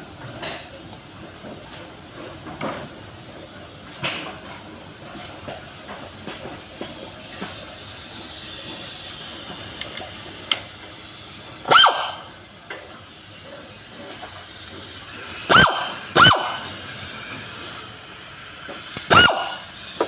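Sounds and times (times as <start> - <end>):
dog barking: 11.7 - 12.2, 15.5 - 16.6, 19.1 - 19.6.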